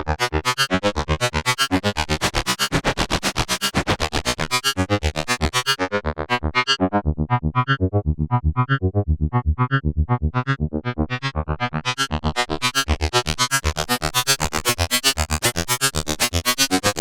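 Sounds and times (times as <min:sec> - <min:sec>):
synthesizer plucky melody: 0:08.4 - 0:11.4.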